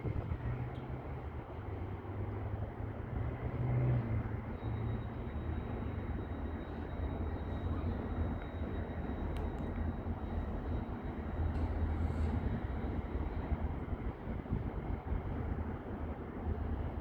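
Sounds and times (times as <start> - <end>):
train diesel engines rumbling: 0.1 - 17.0.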